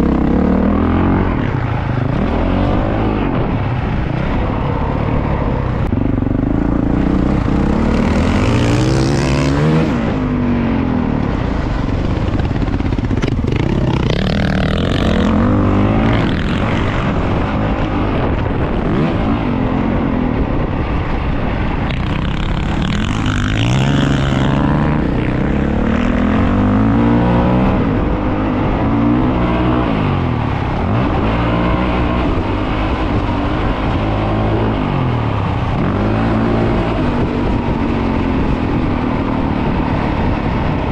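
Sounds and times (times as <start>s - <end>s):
dirt bike engine revving: 6.5s - 10.2s, 12.5s - 17.5s, 21.9s - 28.1s.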